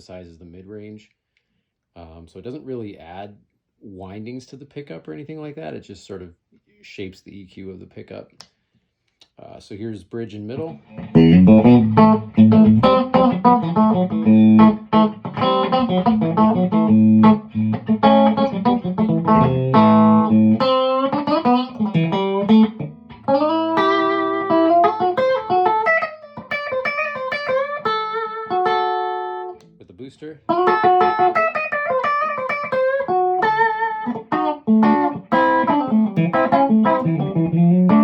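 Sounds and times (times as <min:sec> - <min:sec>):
electric guitar through amp: 0:10.8 - 0:29.7, 0:30.5 - 0:38.0.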